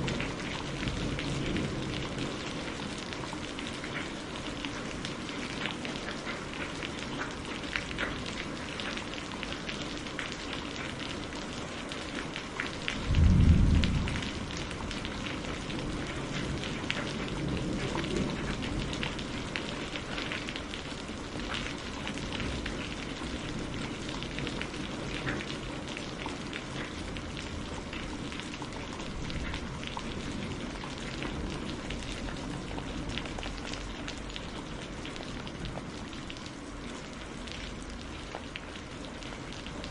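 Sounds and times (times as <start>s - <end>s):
rain drops ticking: 0.0s - 39.9s
loud deep boom: 13.1s - 14.5s
low rumble: 13.1s - 14.9s.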